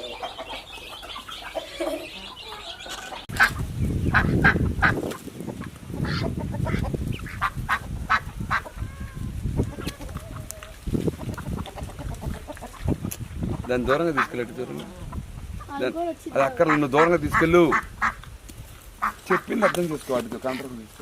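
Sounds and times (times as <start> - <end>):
geese honking: 0.0 - 9.0, 13.6 - 18.2, 19.0 - 20.8.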